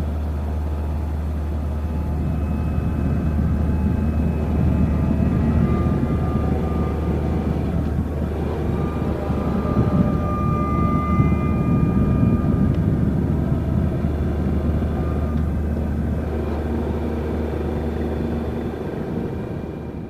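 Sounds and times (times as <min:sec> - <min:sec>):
road and air noise: 0:00.0 - 0:20.0.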